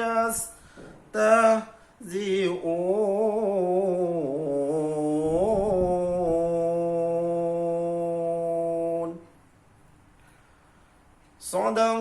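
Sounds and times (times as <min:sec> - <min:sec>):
man chanting melodically: 0:00.0 - 0:09.3, 0:11.4 - 0:12.0.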